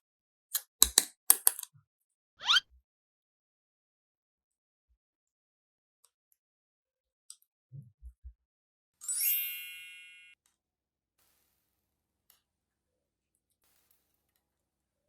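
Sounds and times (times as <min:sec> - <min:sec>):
soft low thumps: 0:07.8 - 0:08.4.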